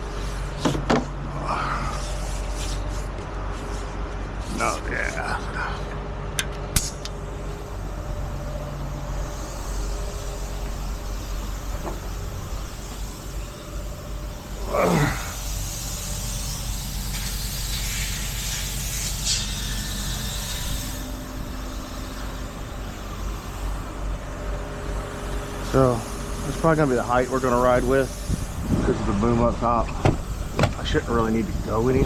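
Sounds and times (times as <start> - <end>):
hiss: 6.8 - 28.9, 30.0 - 32.0
tow truck engine running: 21.1 - 32.0.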